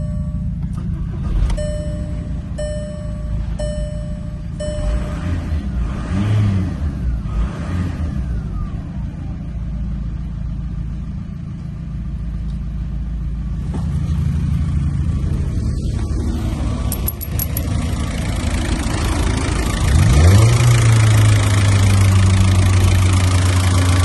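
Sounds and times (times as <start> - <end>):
dashboard chime beep: 0.0 - 0.6, 1.6 - 5.6
diesel engine revving and idling: 0.0 - 24.0.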